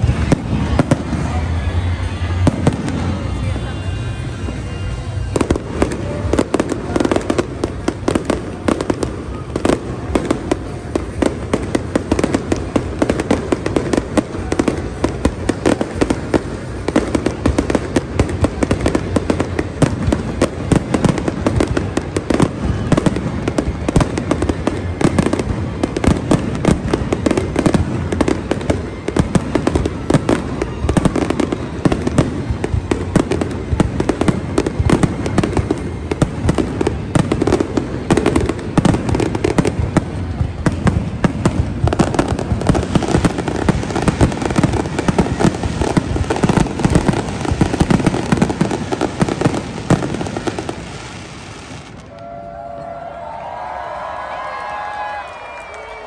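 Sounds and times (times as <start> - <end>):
fireworks bursting and crackling: 0.0 - 52.4.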